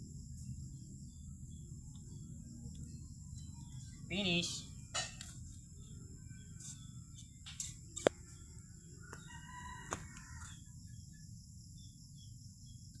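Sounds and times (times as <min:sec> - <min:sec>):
insects chirring: 0:00.0 - 0:13.0
rooster crowing: 0:08.9 - 0:10.8.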